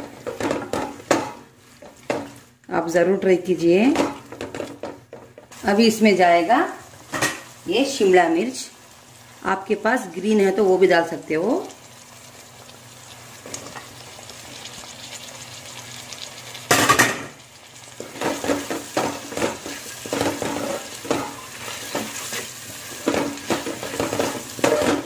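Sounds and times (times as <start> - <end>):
vegetables sizzling in oil: 0.0 - 25.0
spatula scraping a pot: 18.2 - 25.0.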